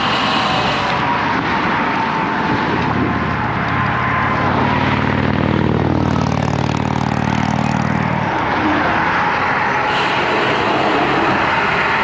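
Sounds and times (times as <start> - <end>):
wind noise on microphone: 0.0 - 7.4, 8.0 - 12.0
vehicle engine passing by: 2.7 - 12.0.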